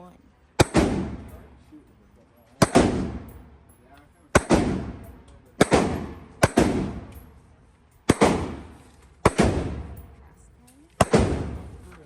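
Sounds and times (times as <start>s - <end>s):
gunshots with echo: 0.6s - 1.4s, 2.6s - 3.4s, 4.3s - 7.2s, 8.1s - 10.0s, 11.0s - 11.8s.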